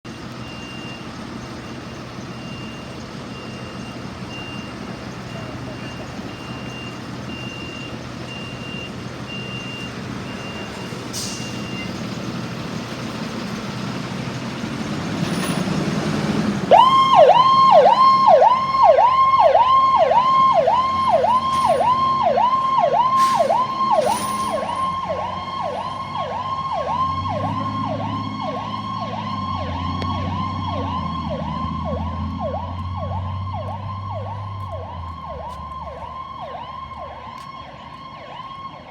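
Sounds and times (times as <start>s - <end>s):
diesel engine running: 0.0s - 38.9s
warning beeper: 16.7s - 35.4s
electronic siren yelping: 16.7s - 38.9s.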